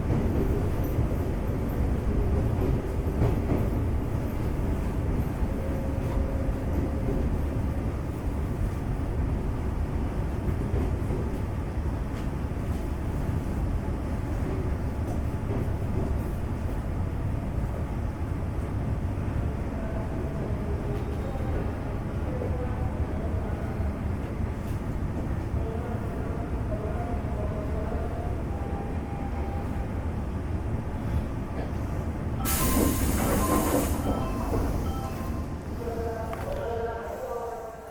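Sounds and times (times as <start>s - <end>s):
train interior rumble: 0.0s - 37.9s
compressed air hiss: 32.5s - 34.0s.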